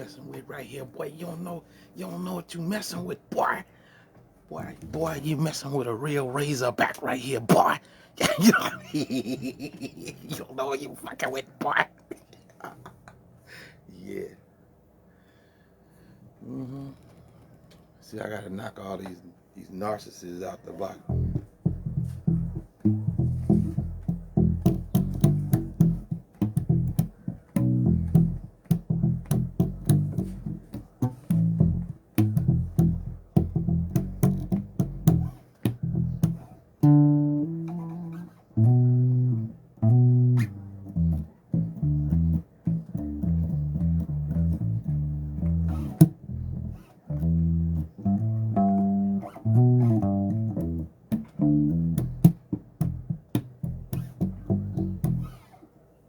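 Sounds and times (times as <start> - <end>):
electric bass guitar playing: 0.0 - 3.2, 21.0 - 55.5.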